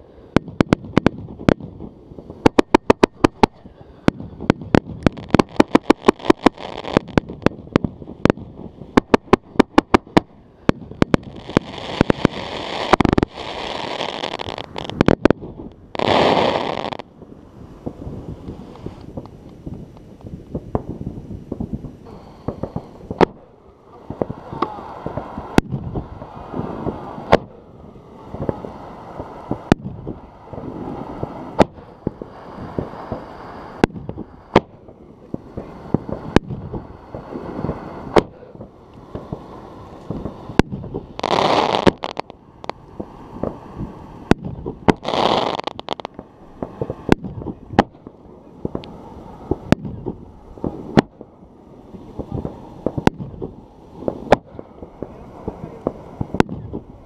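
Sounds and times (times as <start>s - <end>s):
firework rushing bursts: 0.0s - 57.0s
firework cake bangs: 26.8s - 27.6s.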